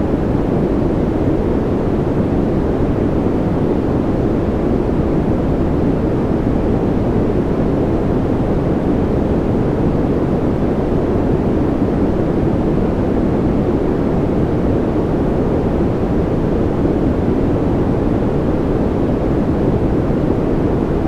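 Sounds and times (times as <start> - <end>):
white noise: 0.0 - 21.0.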